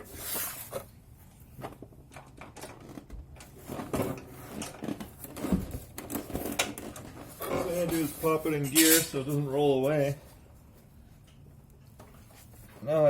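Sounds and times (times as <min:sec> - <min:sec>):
objects handled and set down: 0:00.3 - 0:09.2.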